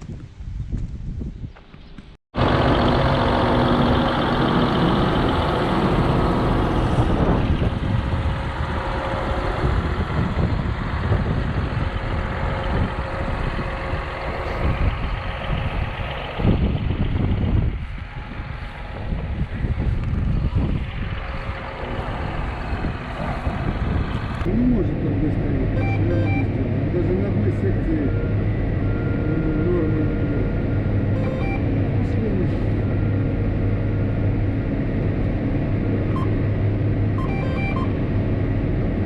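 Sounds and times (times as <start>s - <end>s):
tractor engine running: 2.0s - 39.0s.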